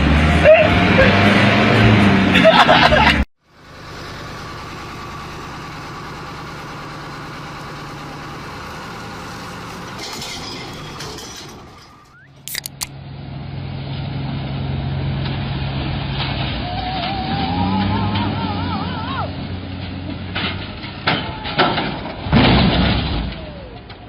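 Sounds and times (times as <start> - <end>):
second vehicle engine running: 0.0 - 10.8
heavy vehicle engine running: 0.0 - 12.0
sharp clicks: 12.4 - 12.9.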